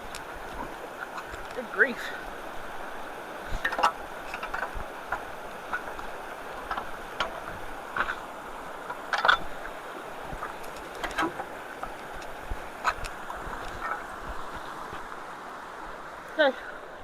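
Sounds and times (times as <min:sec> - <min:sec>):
water rushing through culvert: 0:00.0 - 0:17.0
splashes and knocks: 0:03.4 - 0:15.2.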